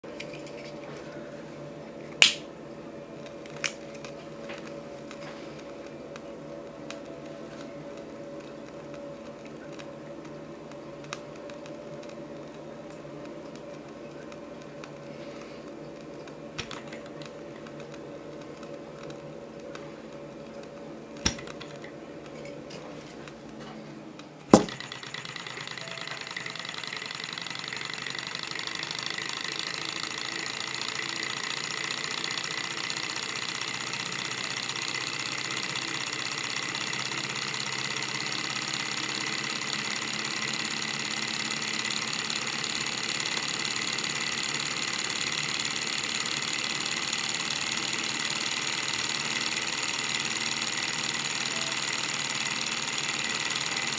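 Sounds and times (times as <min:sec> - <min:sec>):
sharp click: 0:02.2 - 0:02.5, 0:24.5 - 0:24.9
small engine mechanical clatter: 0:03.2 - 0:53.9.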